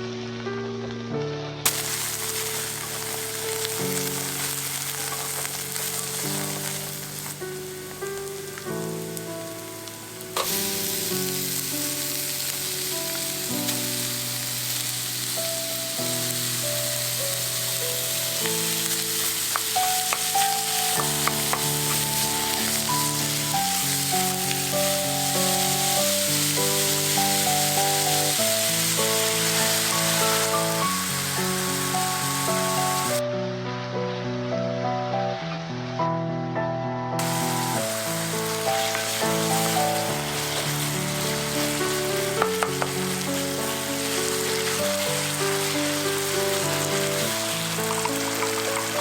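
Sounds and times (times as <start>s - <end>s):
background music with melody: 0.0s - 49.0s
food frying in hot oil: 1.7s - 33.2s, 37.2s - 49.0s.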